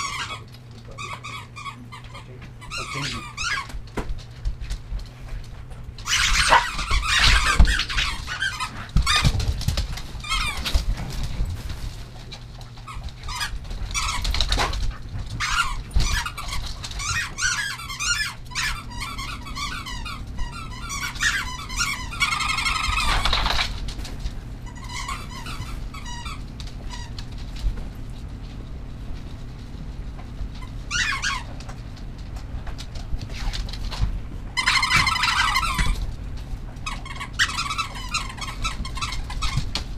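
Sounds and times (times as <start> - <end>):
small animals squeaking: 0.0 - 3.8, 6.0 - 9.4, 10.2 - 10.9, 12.8 - 14.6, 15.3 - 23.8, 24.6 - 27.2, 30.6 - 31.6, 34.5 - 36.1, 36.8 - 39.9.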